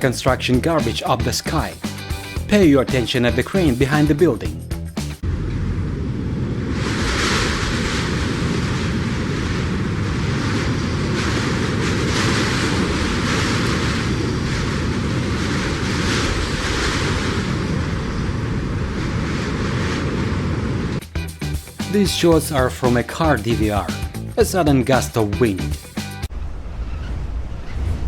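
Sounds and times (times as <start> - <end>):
gusty wind on microphone: 5.2 - 21.2, 26.3 - 28.0.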